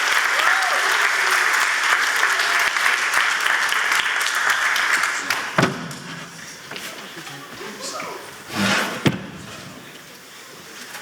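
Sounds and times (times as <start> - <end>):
audience applauding: 0.0 - 6.6
thump: 8.5 - 9.6.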